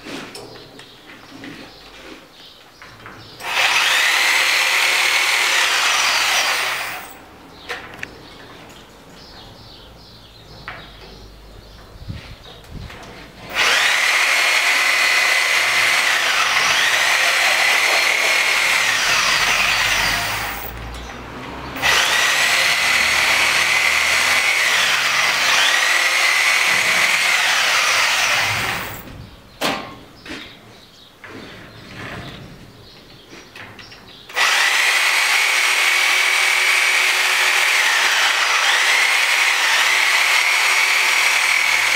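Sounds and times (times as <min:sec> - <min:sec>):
power tool whining: 0:03.4 - 0:07.2, 0:13.4 - 0:29.2, 0:34.3 - 0:41.9.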